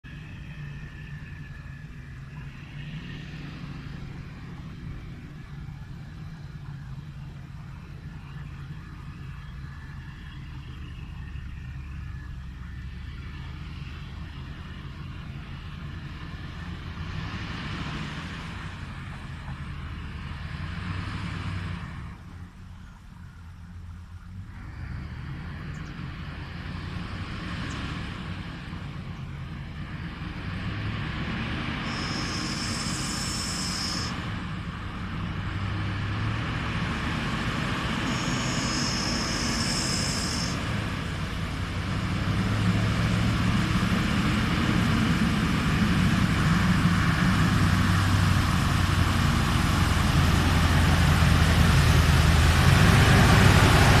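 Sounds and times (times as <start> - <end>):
heavy diesel truck engine: 0.0 - 54.0
high-pitched buzz: 31.8 - 34.2, 37.9 - 40.7.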